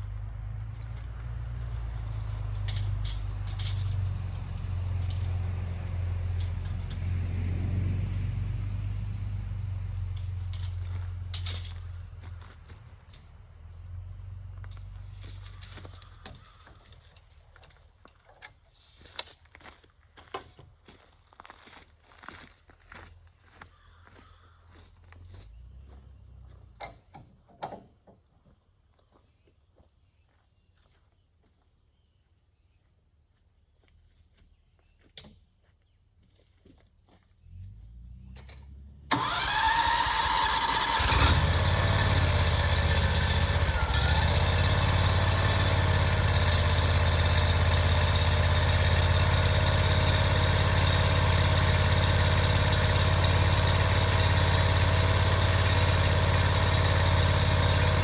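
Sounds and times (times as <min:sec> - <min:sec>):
sawmill engine running: 0:00.0 - 0:16.8, 0:39.1 - 0:58.0.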